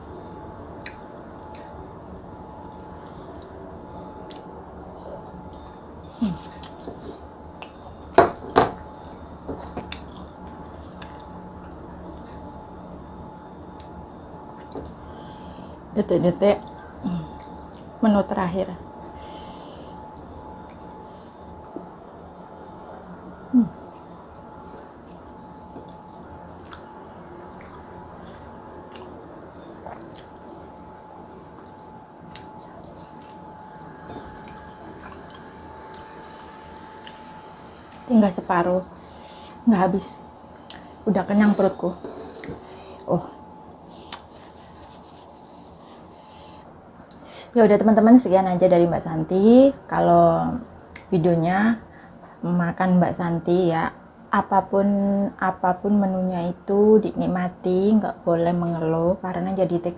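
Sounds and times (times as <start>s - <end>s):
low falling hum: 0.0s - 59.9s
person chewing food: 9.6s - 12.6s, 26.6s - 37.2s.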